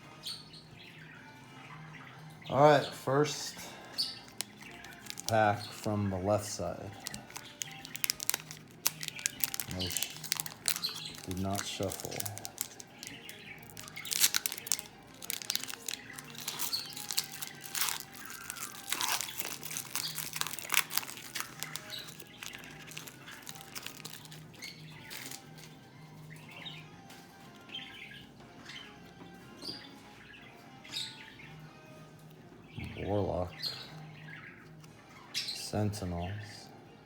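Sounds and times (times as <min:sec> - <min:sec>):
cards being handled: 0:04.2 - 0:05.5, 0:06.9 - 0:25.7
wrapper crinkling and tearing: 0:04.2 - 0:05.5, 0:06.9 - 0:25.7.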